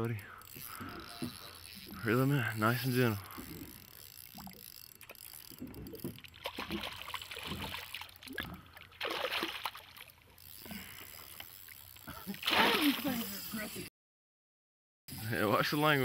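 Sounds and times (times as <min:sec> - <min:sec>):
water splashing against boat hull: 0:05.6 - 0:10.2.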